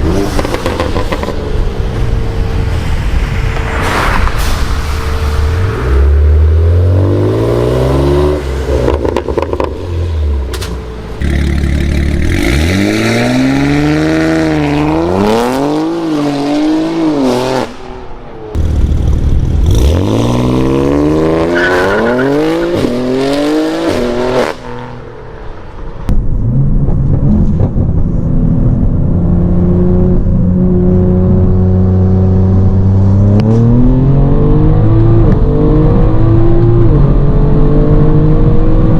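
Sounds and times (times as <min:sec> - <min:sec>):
car engine revving through gears: 0:05.9 - 0:10.4, 0:11.2 - 0:17.7, 0:19.6 - 0:24.9, 0:29.4 - 0:38.9.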